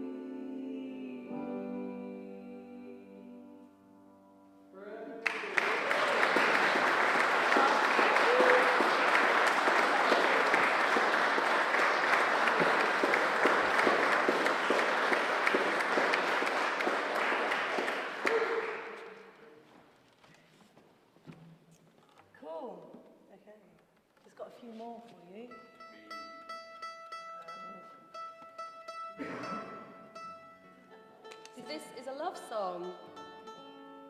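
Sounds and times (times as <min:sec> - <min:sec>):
audience applauding: 0:05.2 - 0:19.4.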